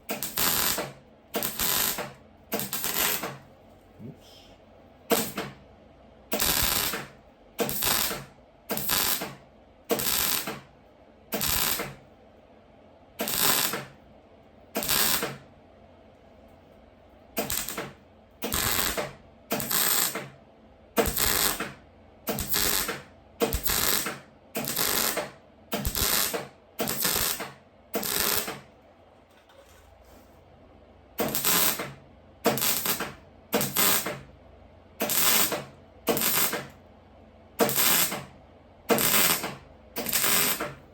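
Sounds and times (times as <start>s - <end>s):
welding bursts: 0.1s - 3.4s, 5.1s - 5.6s, 6.3s - 10.7s, 11.3s - 12.0s, 13.2s - 14.0s, 14.7s - 15.4s, 17.4s - 20.3s, 21.0s - 28.7s, 31.2s - 34.3s, 35.0s - 36.7s, 37.6s - 38.3s, 38.9s - 40.8s.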